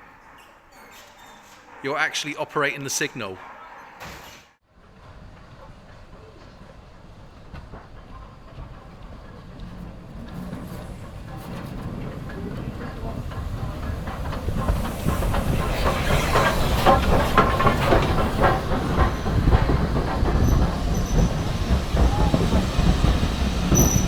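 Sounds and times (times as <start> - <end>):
train wheels clicking on rails: 4.2 - 24.0
steam train approaching: 4.6 - 24.0
hiss of steam: 10.6 - 24.0.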